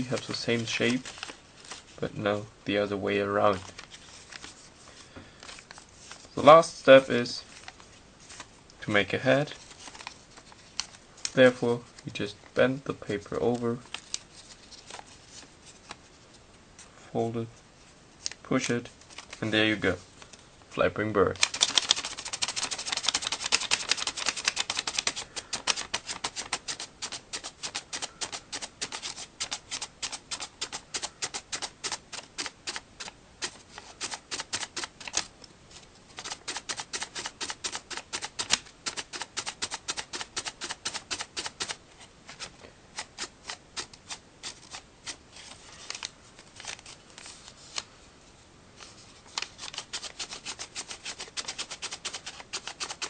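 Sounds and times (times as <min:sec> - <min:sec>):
crisp paper clicks: 0:21.3 - 0:35.3, 0:36.2 - 0:47.9, 0:48.8 - 0:53.0.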